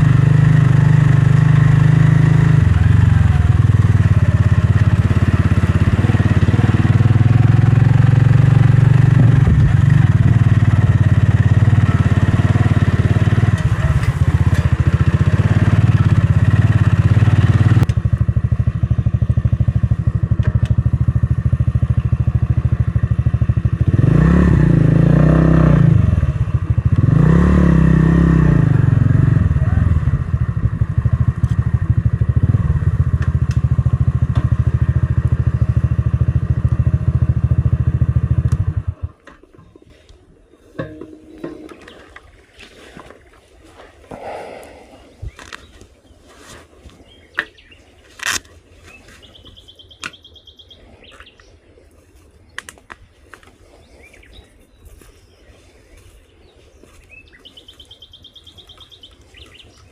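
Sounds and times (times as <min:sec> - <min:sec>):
motorcycle engine revving: 0:00.0 - 0:39.8.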